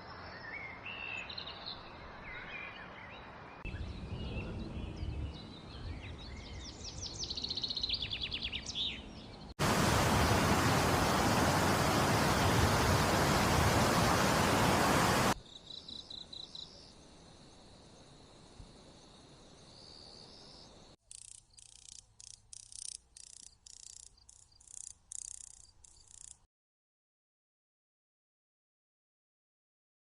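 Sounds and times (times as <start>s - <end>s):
loud rushing hiss: 9.6s - 15.4s
faint high insect trills: 9.6s - 26.5s
raspy insect chirps: 19.7s - 26.5s.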